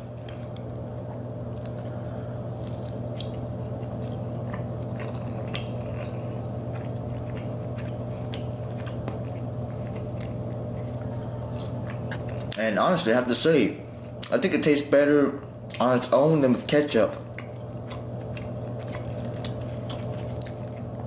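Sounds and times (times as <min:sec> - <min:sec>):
person chewing fried chicken: 0:00.0 - 0:12.6, 0:17.2 - 0:21.0
steady low hum: 0:00.0 - 0:21.0.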